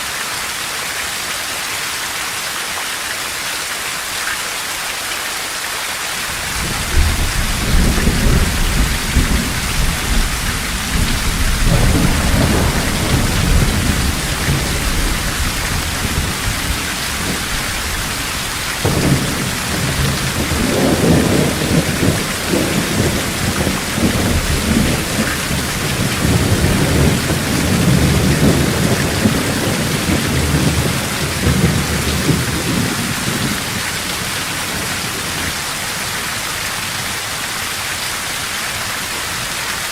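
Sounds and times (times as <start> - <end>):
heavy rain falling: 0.0 - 39.9
thunder rumbling: 6.3 - 35.5.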